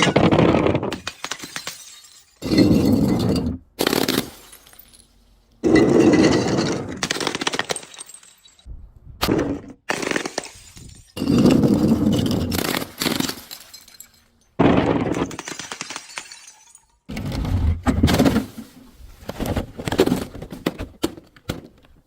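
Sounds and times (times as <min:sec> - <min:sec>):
glass bottles being crushed: 0:00.0 - 0:08.7, 0:09.9 - 0:17.1.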